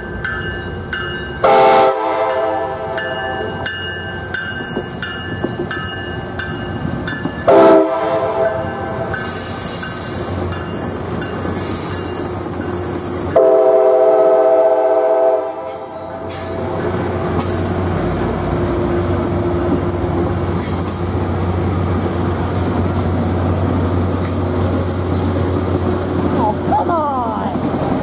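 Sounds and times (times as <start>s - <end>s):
train bell ringing: 0.0s - 13.5s, 15.6s - 22.1s
train wheels rumbling: 0.0s - 28.0s
train horn blasts: 1.4s - 3.6s, 7.5s - 9.0s, 13.3s - 16.0s.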